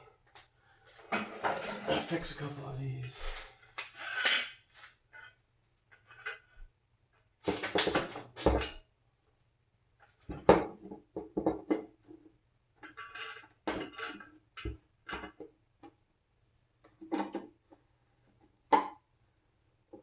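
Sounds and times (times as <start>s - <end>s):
metal tools clinking and rattling: 12.8s - 14.3s.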